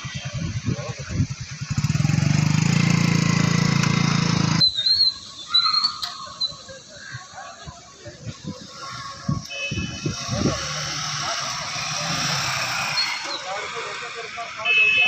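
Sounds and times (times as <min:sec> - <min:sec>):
motorcycle engine running: 0:00.0 - 0:04.8, 0:09.4 - 0:14.1
street noise: 0:00.0 - 0:15.0
high chirps: 0:04.5 - 0:07.3, 0:08.6 - 0:14.1.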